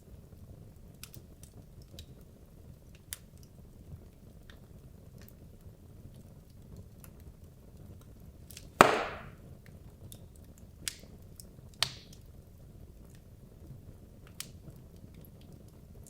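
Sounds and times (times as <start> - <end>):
fire rumbling and crackling: 0.0 - 16.0
wood fire popping: 0.2 - 16.0.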